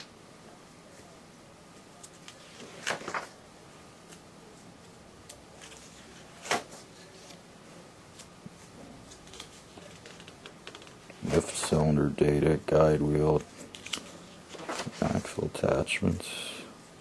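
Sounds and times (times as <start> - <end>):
paper pages rustling: 2.0 - 3.4, 5.5 - 7.4, 8.1 - 11.9, 13.4 - 15.4
paper ticks and crinkles: 2.0 - 3.4, 8.1 - 11.9, 13.4 - 15.4.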